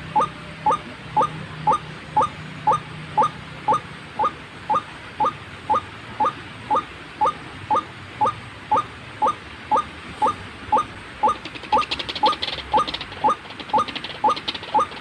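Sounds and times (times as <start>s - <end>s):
low steady hum: 0.0s - 15.0s
waterhen calls: 0.0s - 15.0s.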